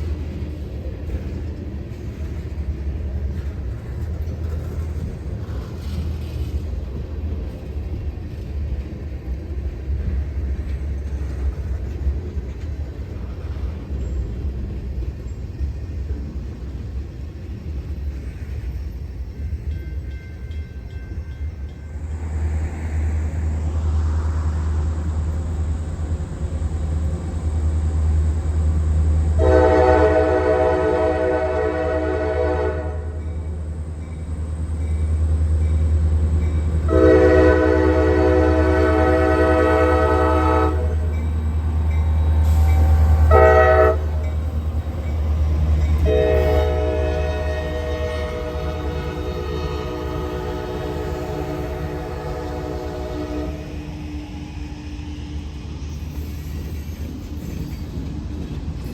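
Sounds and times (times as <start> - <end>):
diesel locomotive engine rumble: 0.0 - 58.9
locomotive air horn blasts: 29.4 - 33.2, 36.9 - 41.1, 42.3 - 44.4, 46.0 - 54.2.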